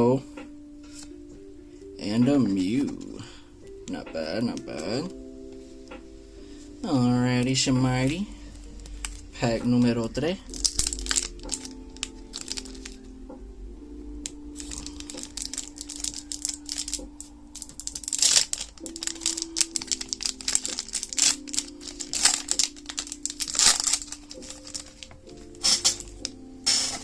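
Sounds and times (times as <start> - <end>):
soft background music: 0.0 - 27.0
foil wrapper crinkling and tearing: 10.5 - 13.0, 14.6 - 27.0.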